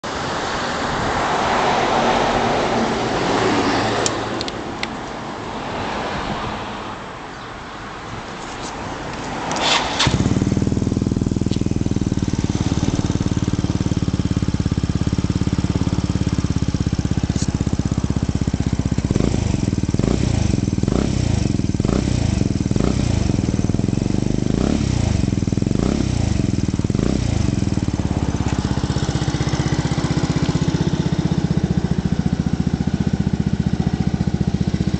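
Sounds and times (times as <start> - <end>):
scooter engine idling: 9.0 - 34.9
scooter throttle blips: 9.5 - 34.9.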